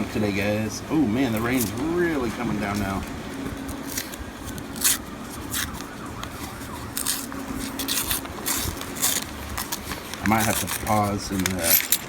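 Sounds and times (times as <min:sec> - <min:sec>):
metallic clinks of coins: 0:11.5 - 0:12.0.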